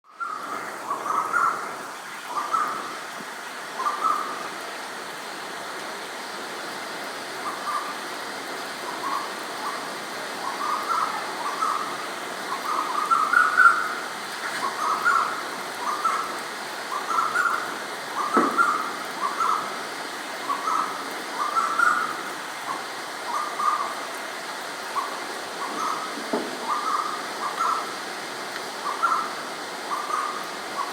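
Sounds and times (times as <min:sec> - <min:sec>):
rain hiss: 0:00.1 - 0:30.9
bird whistled calls: 0:12.5 - 0:14.0, 0:16.9 - 0:17.6, 0:18.2 - 0:19.7, 0:25.0 - 0:27.8.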